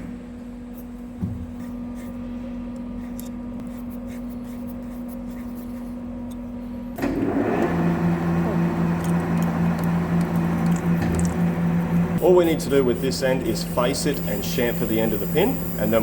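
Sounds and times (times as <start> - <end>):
metal lathe humming: 7.0 - 16.0.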